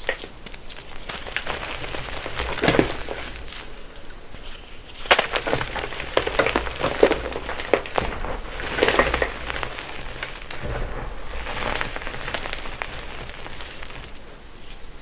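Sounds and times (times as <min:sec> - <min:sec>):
chalk crushing and crumbling: 0:05.0 - 0:06.5.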